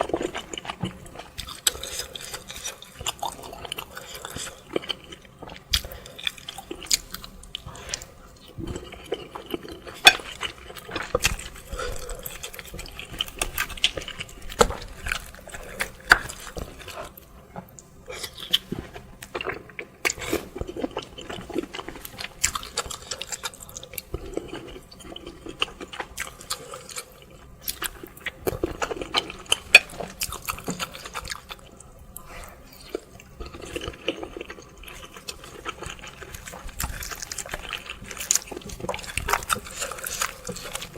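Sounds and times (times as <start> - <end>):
chewing: 0.0 - 40.9
slurping soup: 18.0 - 25.6.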